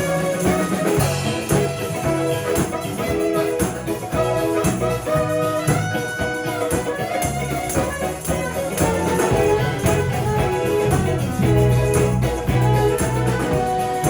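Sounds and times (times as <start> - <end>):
bass line: 0.0 - 14.0
drum hits: 0.0 - 14.0
live band playing: 0.0 - 14.0.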